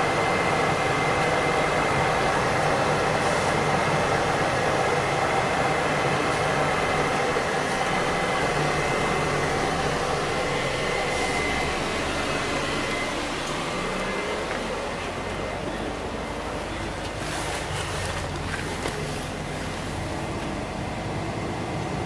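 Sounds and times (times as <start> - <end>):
bus engine and road noise: 0.0 - 22.0
thin high whine: 0.1 - 14.8.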